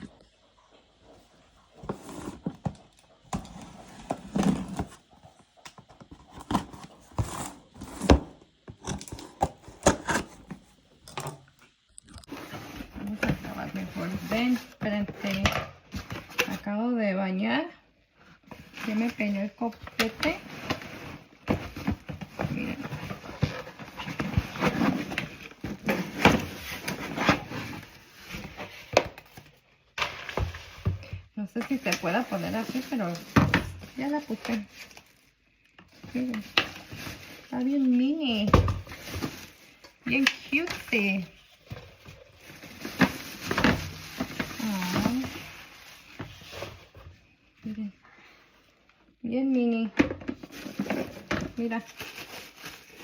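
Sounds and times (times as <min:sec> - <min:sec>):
cardboard box being handled: 0:12.3 - 0:16.7, 0:18.4 - 0:29.5, 0:35.9 - 0:47.2.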